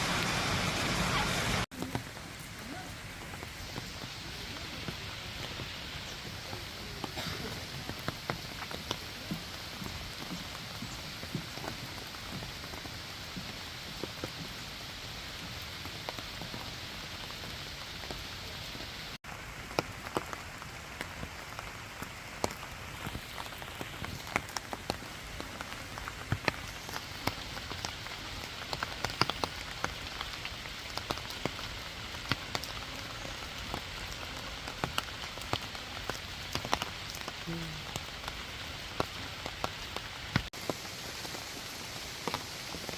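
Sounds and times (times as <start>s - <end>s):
waterfall rushing: 0.0s - 18.9s.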